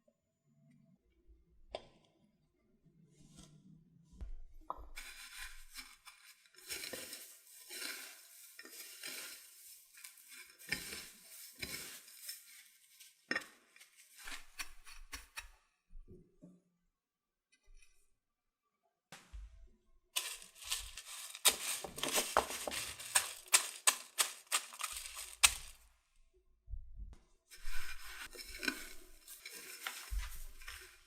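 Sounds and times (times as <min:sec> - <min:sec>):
utensils scraping and clattering: 0:05.0 - 0:15.2, 0:20.2 - 0:25.8, 0:27.6 - 0:31.0.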